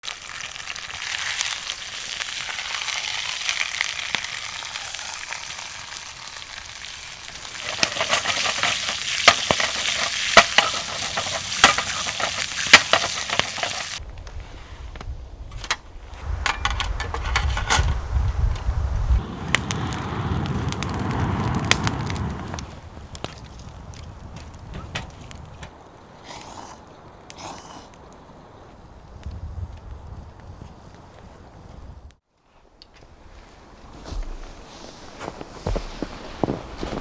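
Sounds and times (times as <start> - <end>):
food sizzling over fire: 0.0 - 14.0, 18.0 - 30.9
fire crackling pops: 0.0 - 32.2
low rumble: 16.2 - 25.5.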